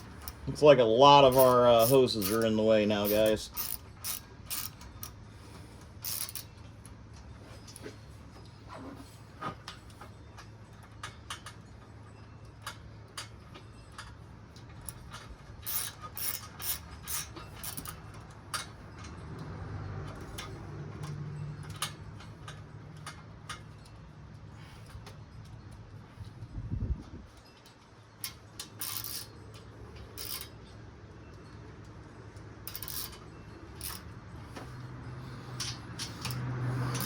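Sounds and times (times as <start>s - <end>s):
metallic clicks of hand tools: 1.2s - 5.2s, 6.0s - 6.5s, 12.6s - 24.0s, 27.6s - 30.6s, 32.7s - 34.1s, 35.5s - 37.0s.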